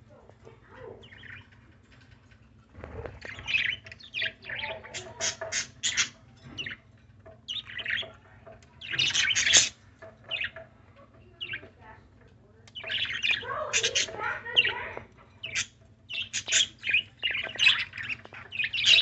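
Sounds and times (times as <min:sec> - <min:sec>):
pet bird chirping and squawking: 0:02.7 - 0:06.8, 0:07.5 - 0:10.7, 0:12.8 - 0:19.0.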